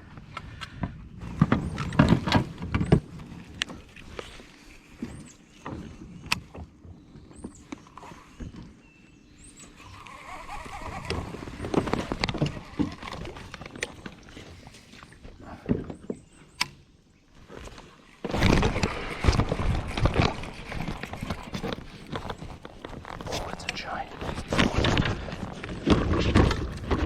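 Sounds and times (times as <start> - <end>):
gear knocking and rustling: 9.8 - 14.2, 17.5 - 27.0.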